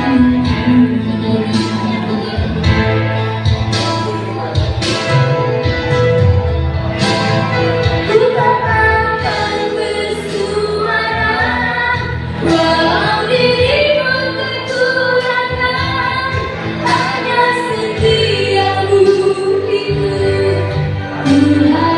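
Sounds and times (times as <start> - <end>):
woman singing: 0.0 - 3.3, 8.1 - 21.9
band with guitar and bass: 0.0 - 21.9.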